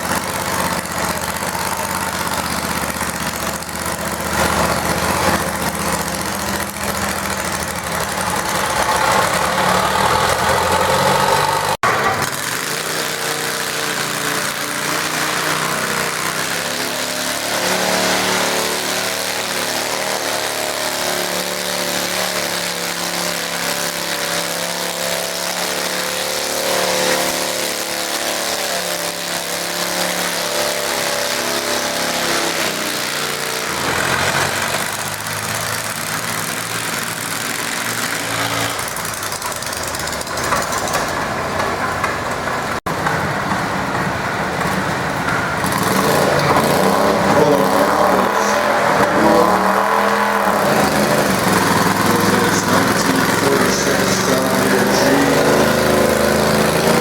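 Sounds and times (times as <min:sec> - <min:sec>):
garden tractor engine running: 0:00.0 - 0:57.0.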